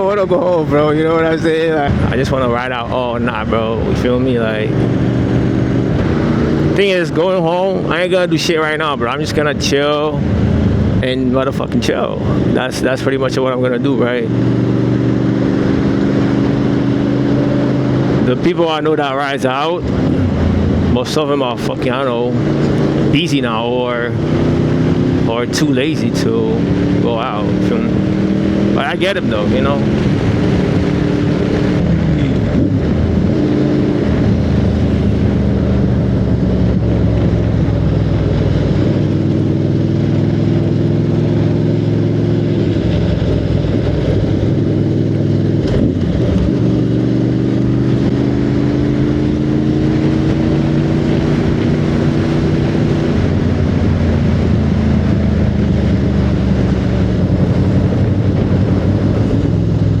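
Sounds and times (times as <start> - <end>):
steady rush of low noise: 0.0 - 14.4
motorcycle engine shifting gears: 0.0 - 60.0.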